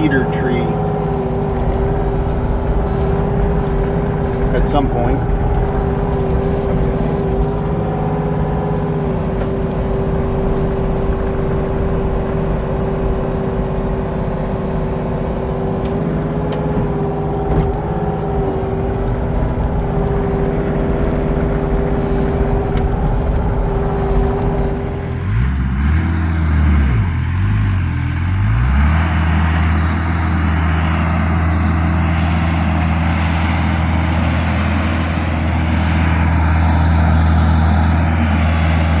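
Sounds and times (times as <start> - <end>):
earthmoving machine engine running: 0.0 - 39.0.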